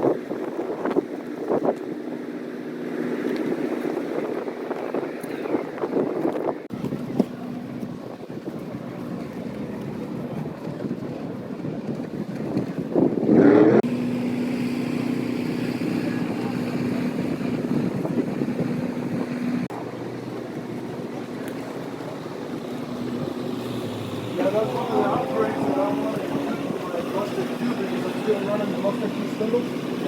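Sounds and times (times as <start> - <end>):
wind on microphone: 0.0 - 30.0
vehicle engine running: 13.6 - 30.0.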